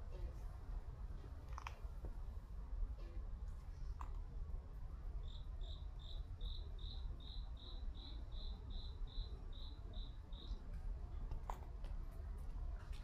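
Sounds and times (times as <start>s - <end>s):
cricket chirping: 5.2s - 10.6s.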